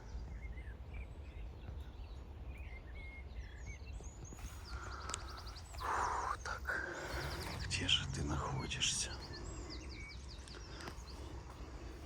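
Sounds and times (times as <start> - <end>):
small birds chirping: 0.0 - 12.0
low outdoor rumble: 4.7 - 12.0.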